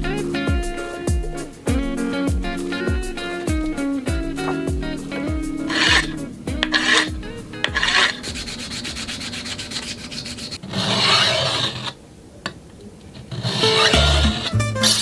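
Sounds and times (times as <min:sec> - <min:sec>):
abrasive rubbing on knife: 0:02.7 - 0:11.9, 0:13.3 - 0:15.0.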